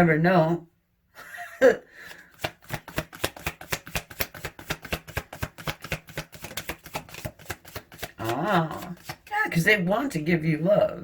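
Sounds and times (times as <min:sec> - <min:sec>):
cards being shuffled: 0:02.1 - 0:09.6.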